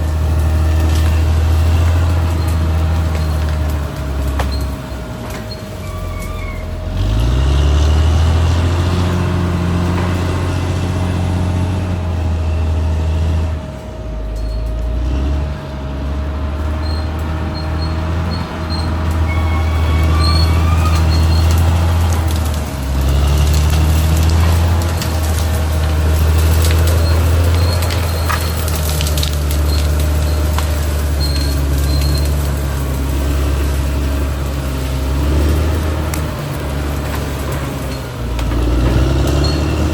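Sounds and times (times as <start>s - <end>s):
bulldozer diesel engine: 0.0s - 39.9s.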